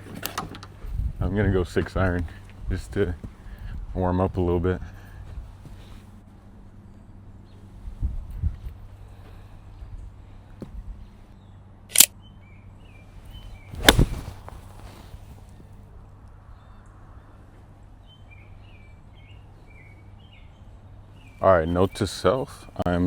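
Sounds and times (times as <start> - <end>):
small birds chirping: 11.0 - 15.0, 18.0 - 23.0
golf club striking ball: 13.8 - 14.9
club swish: 13.8 - 15.0.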